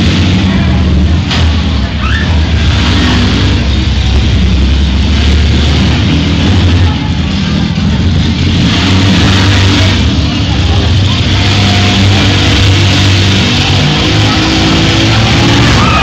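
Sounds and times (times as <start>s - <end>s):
minivan engines revving hard: 0.0s - 16.0s
vans grinding against each other: 0.0s - 16.0s.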